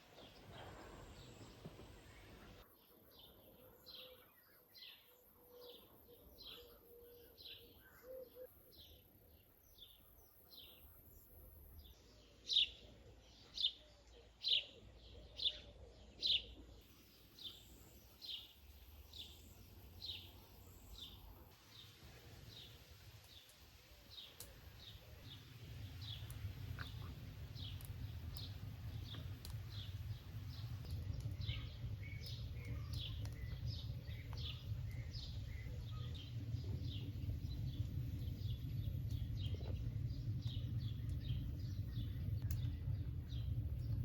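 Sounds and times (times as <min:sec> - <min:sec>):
small bird chirping: 0:24.2 - 0:44.0
low steady rumble: 0:24.8 - 0:44.0.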